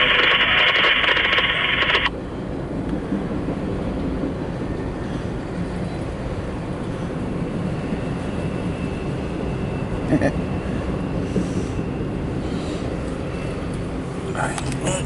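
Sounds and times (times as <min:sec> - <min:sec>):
scanner radio hiss: 0:00.0 - 0:02.1
freight train rumble: 0:00.0 - 0:15.0.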